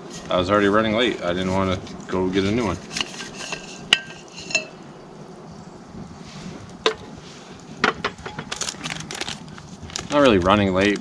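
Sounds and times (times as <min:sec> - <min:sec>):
metal cookware clinking: 0:03.0 - 0:04.8.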